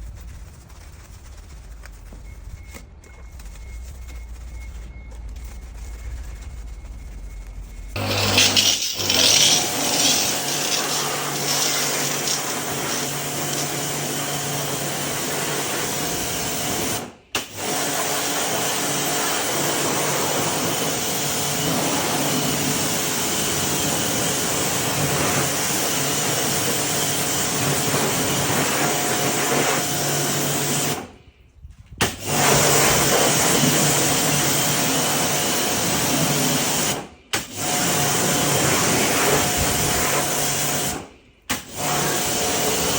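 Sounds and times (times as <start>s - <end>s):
electric motor machine hissing: 8.0s - 15.1s.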